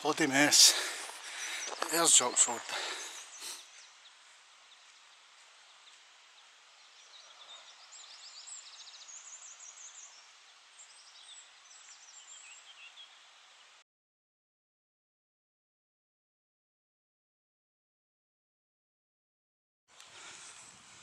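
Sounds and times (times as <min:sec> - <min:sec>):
faint outdoor hiss: 0:00.0 - 0:13.8, 0:19.9 - 0:21.0
small birds chirping and trilling: 0:00.1 - 0:13.8.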